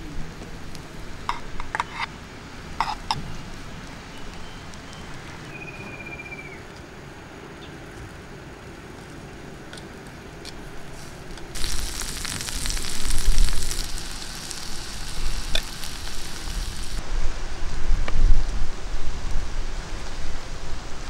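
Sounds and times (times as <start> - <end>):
mushrooms sizzling on hot stone: 2.6 - 5.6, 10.6 - 17.0
low rumbles: 11.6 - 21.0.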